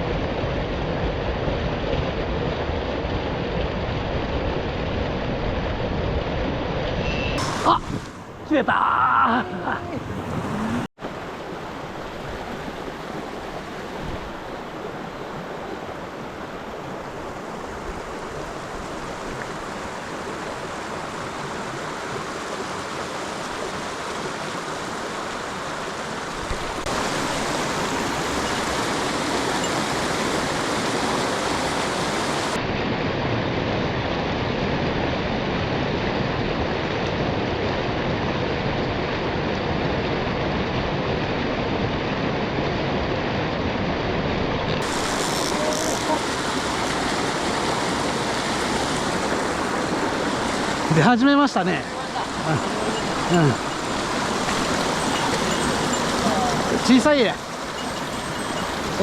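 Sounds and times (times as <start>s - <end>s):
river water rushing: 7.4s - 32.6s, 43.6s - 59.0s.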